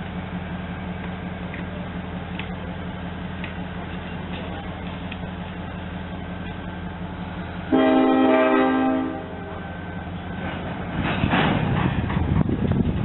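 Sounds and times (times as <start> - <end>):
diesel locomotive idling: 0.0 - 13.0
moving train rumbling: 0.0 - 13.0
train horn blast: 7.7 - 10.0.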